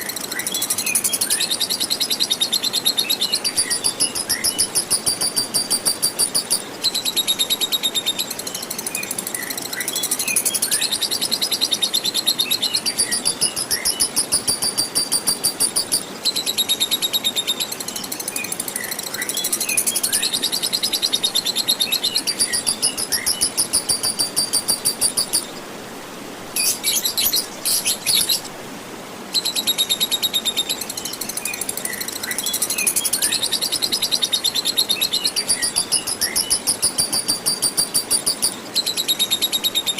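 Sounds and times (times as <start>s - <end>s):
flowing water hiss: 0.0s - 39.9s
lovebird chattering trill: 3.2s - 7.6s, 10.3s - 16.0s, 19.5s - 25.5s, 26.6s - 28.5s, 32.6s - 39.9s.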